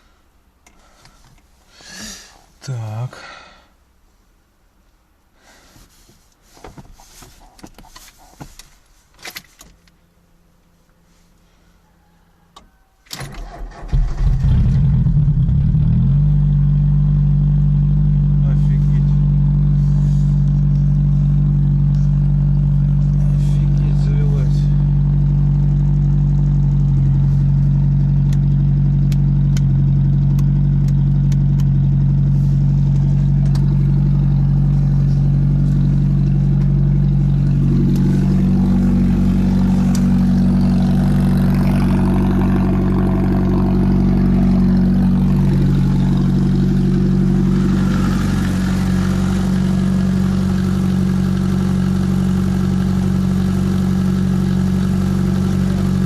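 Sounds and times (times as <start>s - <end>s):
car engine idling: 13.4s - 56.0s.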